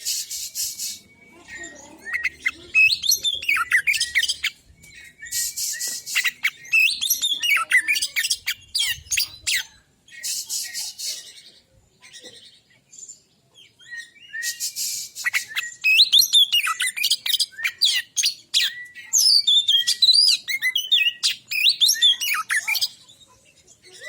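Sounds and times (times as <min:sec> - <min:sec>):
bird singing whistles and chatter: 0:00.0 - 0:12.2, 0:13.7 - 0:24.0.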